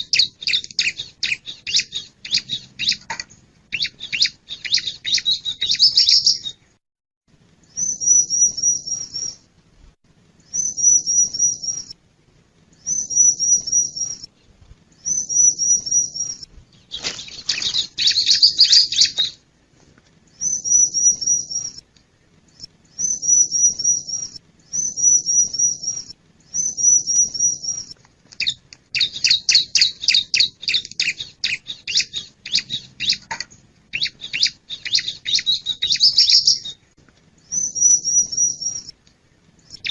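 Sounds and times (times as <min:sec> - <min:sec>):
bird chattering: 0:00.0 - 0:06.6, 0:23.0 - 0:36.8.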